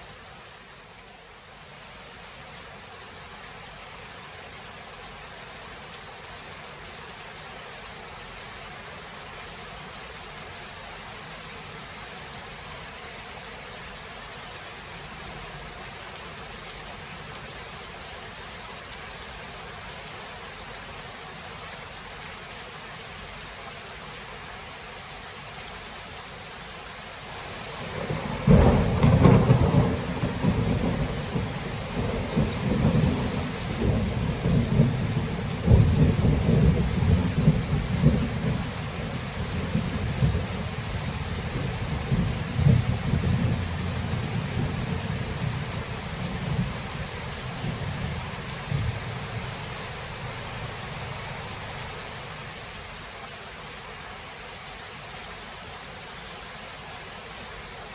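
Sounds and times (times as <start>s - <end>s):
steady rain: 0.0s - 57.9s
thunder clap and rumble: 27.4s - 51.7s.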